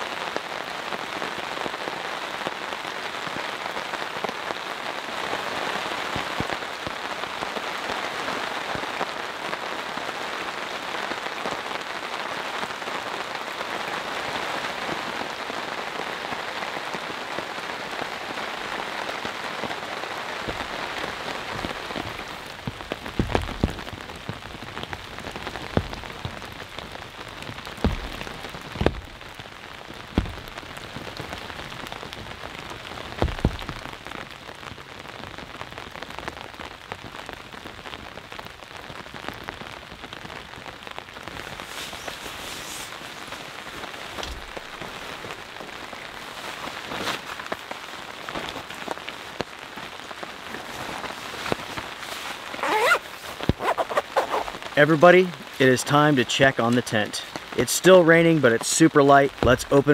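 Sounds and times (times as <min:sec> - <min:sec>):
rain on a tarp: 0:00.0 - 0:59.9
large drops tapping: 0:21.6 - 0:24.4, 0:27.4 - 0:31.2, 0:33.2 - 0:34.0.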